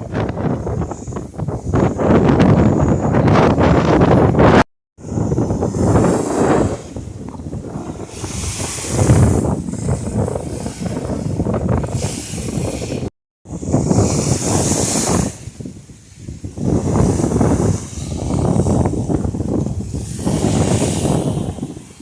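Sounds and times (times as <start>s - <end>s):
wind buffeting microphone: 0.0s - 22.0s
surf washing on a beach: 5.0s - 22.0s.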